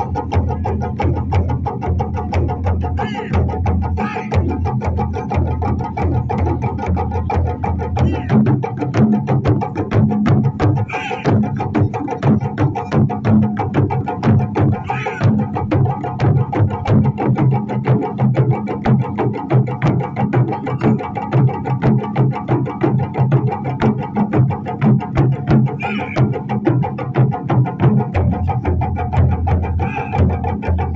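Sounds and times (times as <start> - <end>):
short shouted calls: 3.0 - 3.4, 4.0 - 4.4, 8.0 - 8.4, 10.8 - 11.3, 14.8 - 15.3, 25.8 - 26.2, 29.8 - 30.2.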